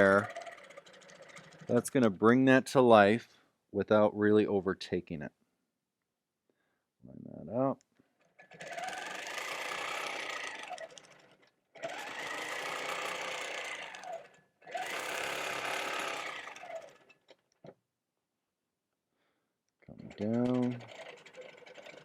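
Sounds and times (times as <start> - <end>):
quilting machine stitching: 0.0 - 2.1, 8.2 - 17.4, 19.8 - 22.0.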